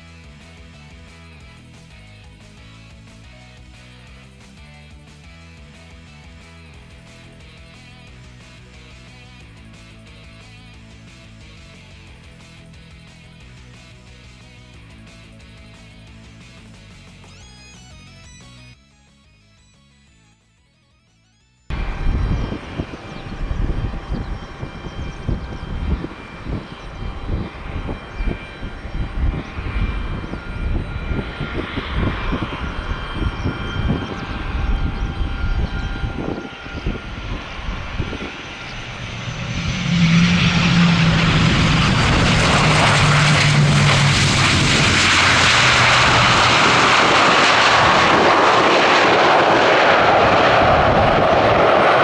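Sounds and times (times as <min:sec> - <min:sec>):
aircraft engines roaring: 0:00.0 - 0:17.5, 0:21.7 - 0:52.0
strong wind buffeting microphone: 0:21.7 - 0:52.0.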